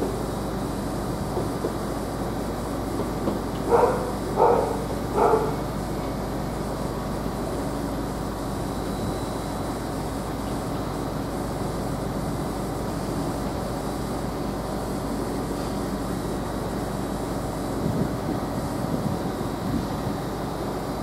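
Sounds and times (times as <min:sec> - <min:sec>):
background hum: 0:02.4 - 0:06.2
dog barking: 0:03.7 - 0:05.6.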